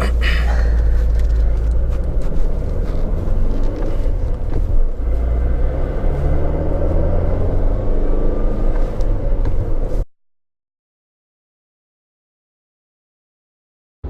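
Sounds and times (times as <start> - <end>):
car engine and road rumble: 0.0 - 10.1.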